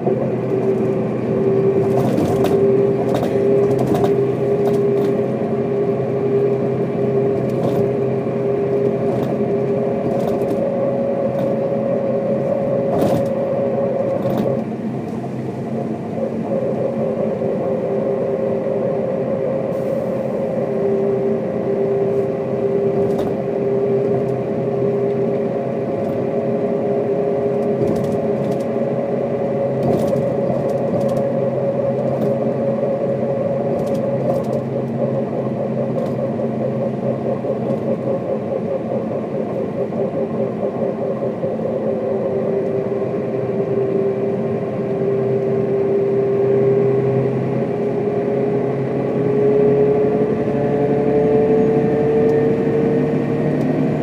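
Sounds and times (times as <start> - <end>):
bus diesel engine running: 0.0 - 54.0
rattles and clicks: 1.8 - 5.2, 7.3 - 8.0, 8.7 - 11.7, 12.8 - 14.7, 23.0 - 23.4, 27.5 - 28.8, 29.7 - 32.6, 33.6 - 41.7.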